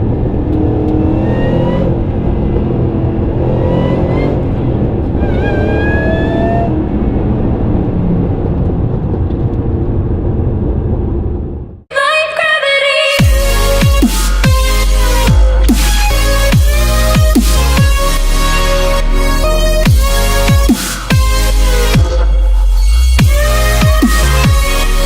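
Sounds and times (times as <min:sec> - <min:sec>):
car engine accelerating hard: 0:00.0 - 0:10.9
supercharger whine: 0:00.0 - 0:11.8
electronic music: 0:03.5 - 0:04.5, 0:12.4 - 0:25.0.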